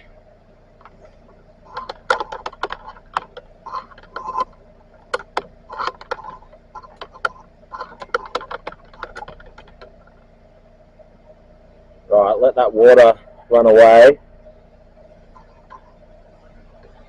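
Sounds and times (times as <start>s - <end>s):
faint steady hum: 0.0s - 17.0s
equipment clicks and rattles: 0.8s - 10.2s.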